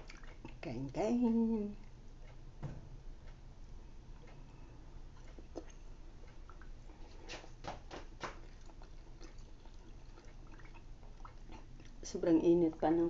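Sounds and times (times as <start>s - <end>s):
person chewing pizza: 5.1s - 12.0s.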